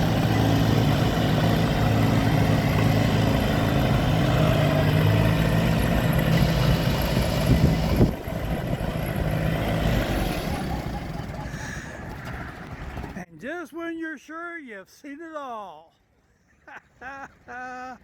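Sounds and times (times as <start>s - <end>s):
vehicle engine idling: 0.0s - 13.2s.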